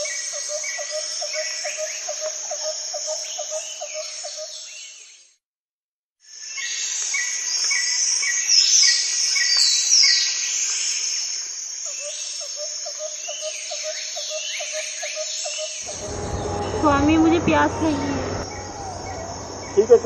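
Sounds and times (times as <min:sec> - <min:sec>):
high hiss of insects: 0:06.2 - 0:15.0
low repeated call: 0:15.9 - 0:20.0.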